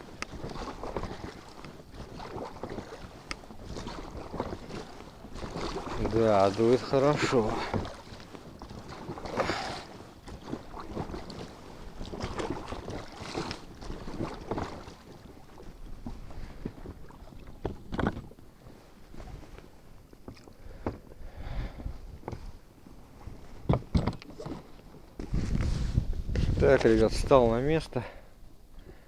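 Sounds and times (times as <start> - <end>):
wind buffeting microphone: 0.0 - 14.6, 20.6 - 22.6, 25.1 - 28.0
water slapping against hull: 0.0 - 28.2.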